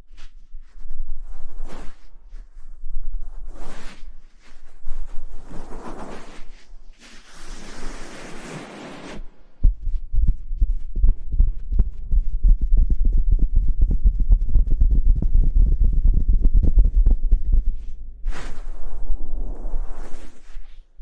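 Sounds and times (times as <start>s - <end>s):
muffled tapping on microphone: 9.6s - 17.9s.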